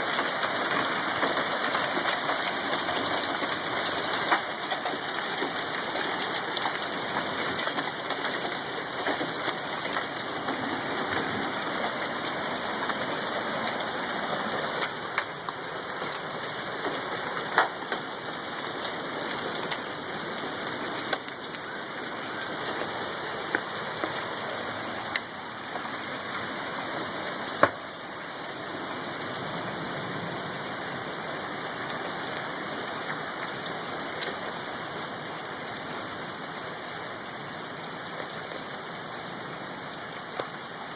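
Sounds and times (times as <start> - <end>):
hailstones knocking: 0.0 - 28.0
rain and hail falling: 0.0 - 40.9.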